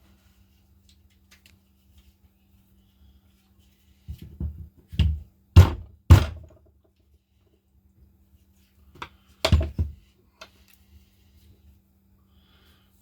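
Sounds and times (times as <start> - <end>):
tool parts knocking on workbench: 4.2 - 6.6, 9.4 - 10.0.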